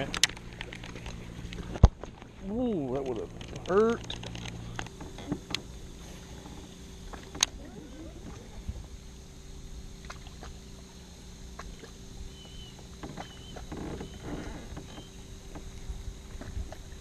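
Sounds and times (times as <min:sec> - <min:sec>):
water sloshing against kayak hull: 0:00.0 - 0:09.2, 0:09.9 - 0:17.0
faint high chirps: 0:12.2 - 0:14.2.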